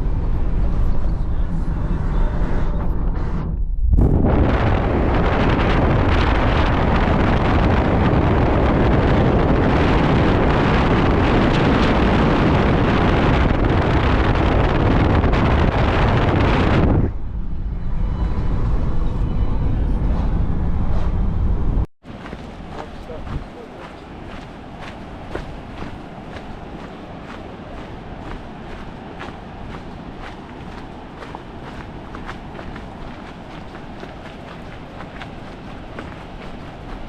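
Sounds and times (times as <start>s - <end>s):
strong wind buffeting microphone: 0.0s - 37.0s.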